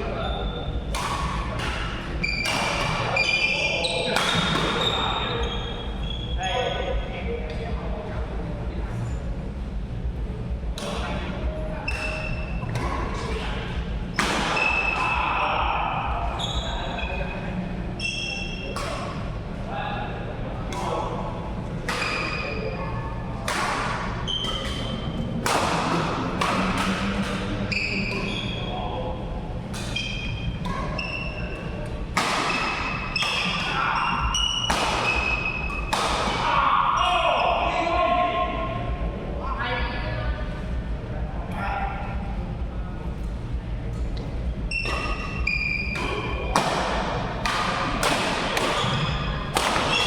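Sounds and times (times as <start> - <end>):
court shoes squeaking: 0.0 - 8.2, 10.4 - 19.6, 20.5 - 36.4, 43.0 - 50.0
racket hitting shuttlecock: 0.9 - 3.1, 4.1 - 4.9, 14.1 - 15.2, 18.7 - 19.2, 23.4 - 27.5, 29.7 - 36.6, 44.7 - 50.0.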